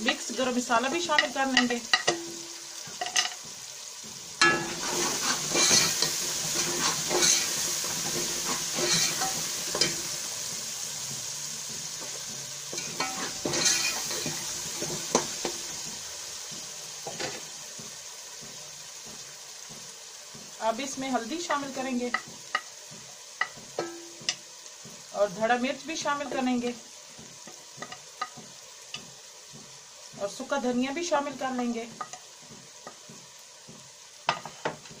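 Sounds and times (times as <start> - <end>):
food sizzling in a pot: 0.0 - 35.0
spoon scraping and knocking pot: 4.4 - 10.0, 12.0 - 15.9.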